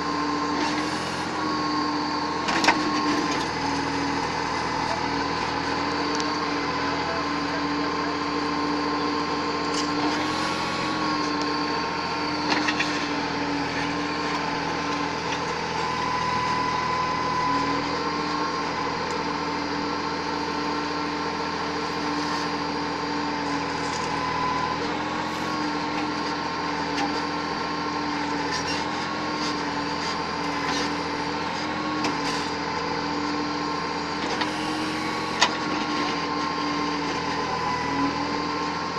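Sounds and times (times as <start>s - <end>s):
heavy machinery engine running: 0.0s - 38.9s.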